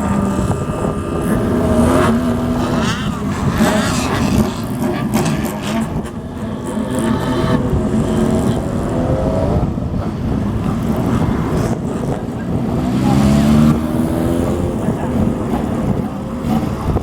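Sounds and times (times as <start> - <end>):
motorcycles revving past: 0.0 - 17.0.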